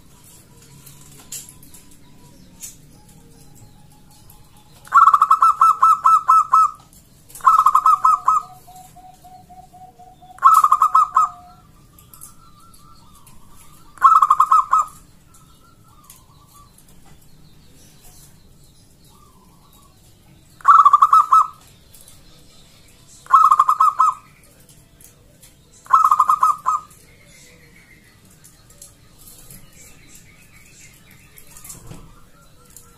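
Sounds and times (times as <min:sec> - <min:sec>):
dove rapid staccato cooing: 0:04.8 - 0:11.6, 0:12.2 - 0:15.0, 0:20.6 - 0:21.6, 0:23.3 - 0:24.3, 0:25.9 - 0:27.0.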